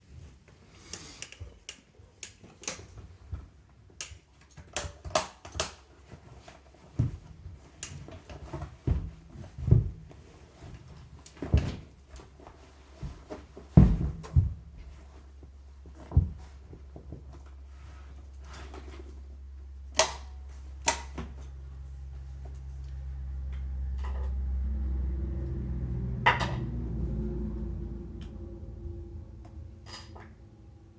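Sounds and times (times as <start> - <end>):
faint low hum: 8.5 - 30.9
heavy thumps: 13.1 - 15.0.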